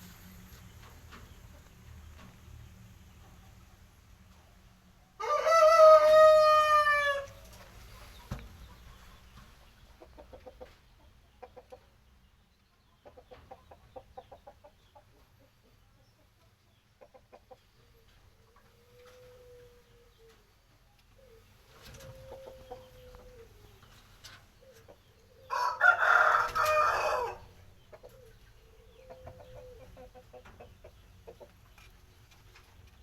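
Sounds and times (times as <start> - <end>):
rooster crowing: 5.2 - 7.3, 25.5 - 27.5.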